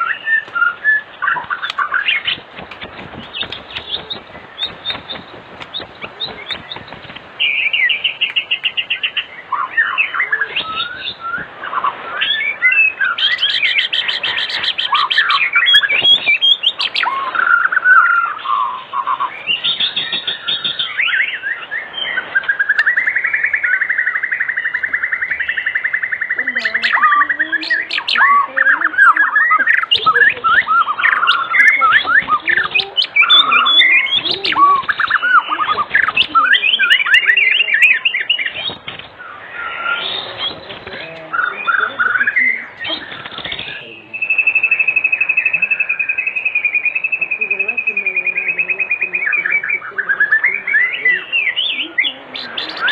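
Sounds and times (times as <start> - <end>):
songbird singing whistles and trills: 0.0 - 52.9.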